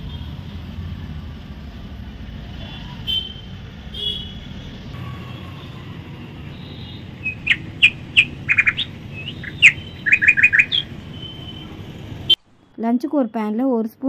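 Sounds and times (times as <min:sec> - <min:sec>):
low background hum: 0:05.0 - 0:14.0
small birds chirping: 0:05.4 - 0:12.4.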